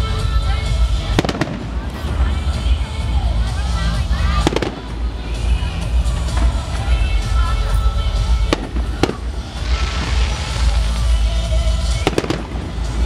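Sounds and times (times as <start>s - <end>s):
firework bangs: 0.8s - 13.0s
firework hiss: 3.6s - 13.0s.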